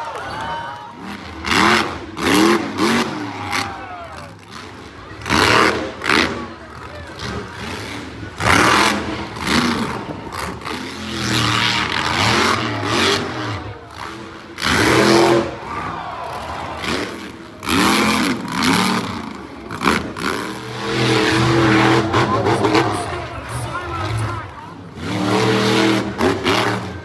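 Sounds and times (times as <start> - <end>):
monster truck engine revving: 0.0 - 27.0.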